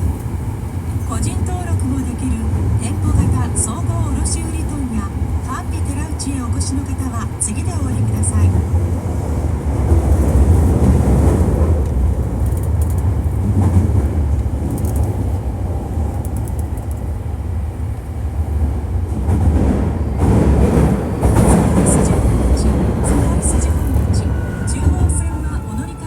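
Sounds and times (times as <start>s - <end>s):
rushing tunnel noise: 0.0s - 26.0s
train wheels rumbling on rail: 0.0s - 26.0s
faint clicks: 11.8s - 13.1s, 16.1s - 17.0s.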